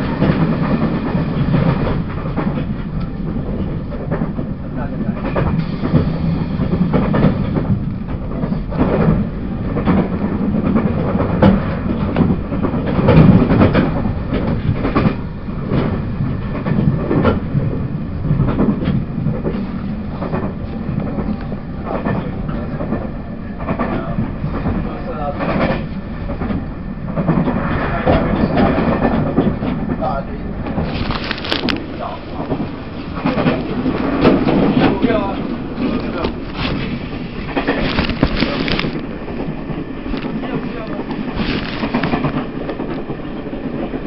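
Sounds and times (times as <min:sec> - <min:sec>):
train wheels rumbling on track: 0:00.0 - 0:44.0
wheels clicking over rails: 0:00.0 - 0:44.0.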